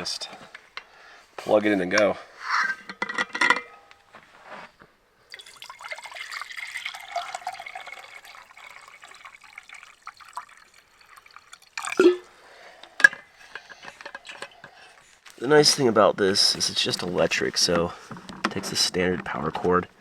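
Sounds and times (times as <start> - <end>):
water pouring into kettle: 5.3 - 12.3.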